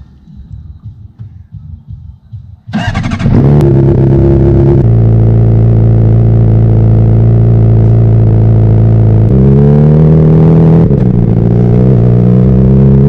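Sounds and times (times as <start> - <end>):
motorcycle engine idling: 0.2 - 9.3
motorcycle engine cranking: 2.7 - 3.7.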